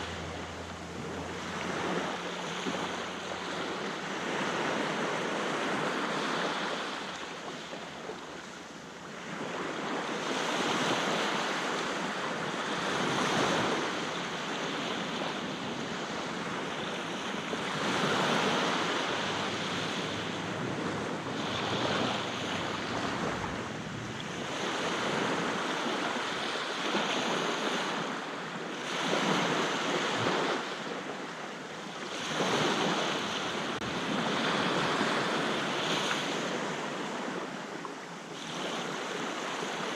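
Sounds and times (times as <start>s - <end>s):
wind noise on microphone: 0.0s - 31.1s
sea waves breaking on shore: 0.0s - 39.9s.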